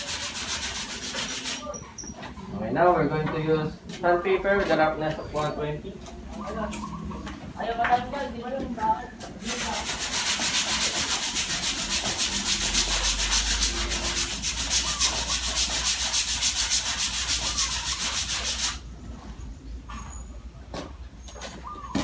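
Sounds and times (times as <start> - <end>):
sandpaper rubbing on body filler: 0.0 - 1.7, 9.4 - 18.8.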